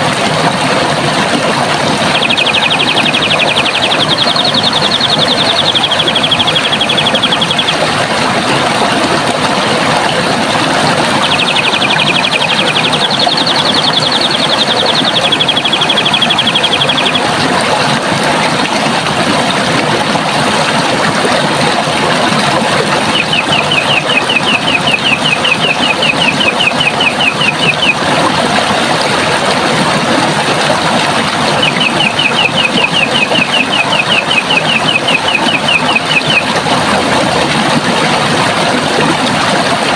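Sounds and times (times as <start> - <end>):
running water rushing: 0.0 - 39.9
bird singing rapid trills: 2.1 - 7.8, 11.1 - 17.3, 23.0 - 28.0, 31.5 - 36.5.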